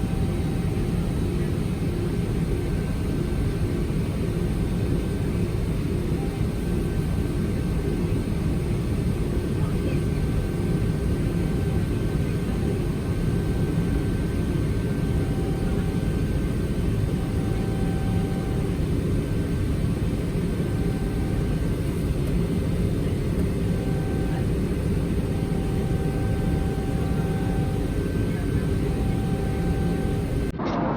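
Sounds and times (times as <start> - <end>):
faint steady whine: 0.0 - 30.5
jet engine and airflow rumble: 0.0 - 30.9.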